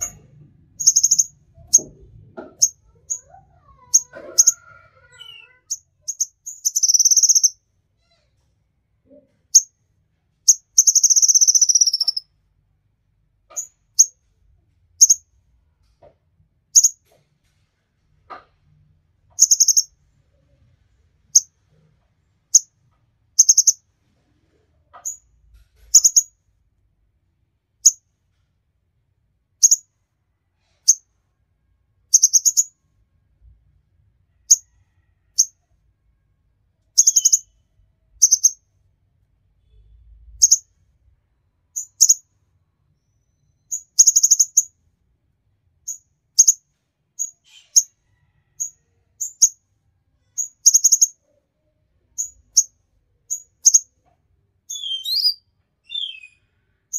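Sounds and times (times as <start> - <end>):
sunbird chirping and twittering: 0.8 - 1.9, 2.6 - 7.6, 10.5 - 12.2, 19.4 - 19.9, 23.4 - 23.8, 26.0 - 26.3, 32.2 - 32.7, 37.0 - 37.5, 38.2 - 38.6, 43.4 - 44.7, 54.7 - 56.4.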